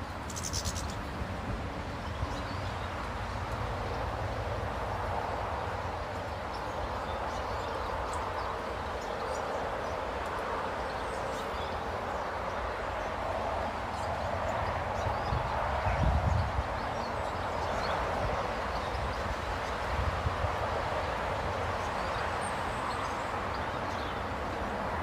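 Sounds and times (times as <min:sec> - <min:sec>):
small birds chirping: 0:00.1 - 0:01.2.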